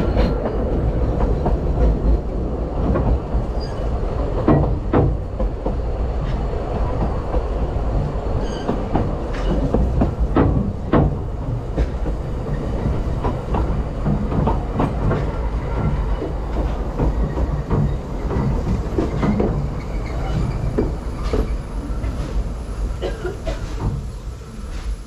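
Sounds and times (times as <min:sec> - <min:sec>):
railway carriage rumbling: 0:00.0 - 0:25.0.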